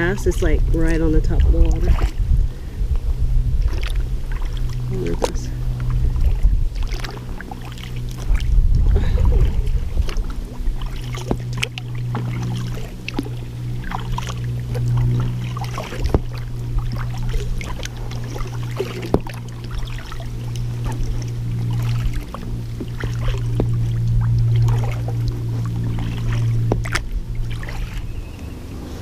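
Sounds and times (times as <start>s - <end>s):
water dripping and splashing: 0.0s - 2.3s, 3.5s - 28.5s
low hum: 0.0s - 29.0s
paddle knocking on hull: 3.0s - 28.1s.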